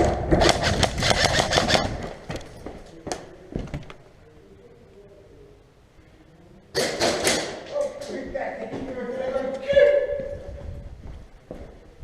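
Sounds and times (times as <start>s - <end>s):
airsoft gun rapid burst: 0.4s - 2.0s.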